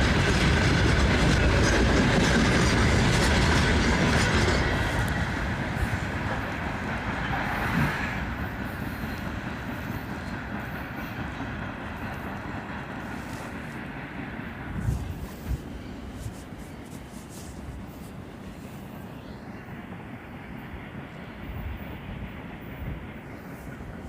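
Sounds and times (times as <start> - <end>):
freight train wheels clattering: 0.0 - 19.0.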